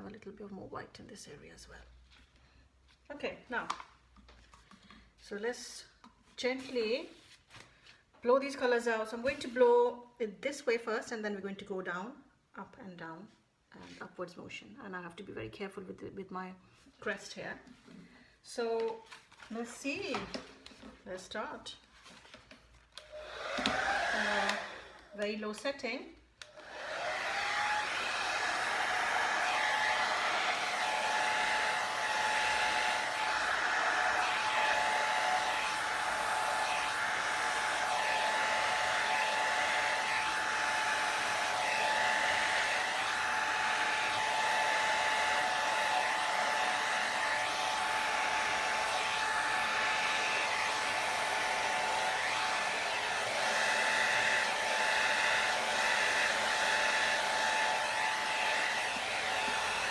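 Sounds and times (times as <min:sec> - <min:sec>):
hair dryer running: 0:23.0 - 0:25.6, 0:26.4 - 0:59.9.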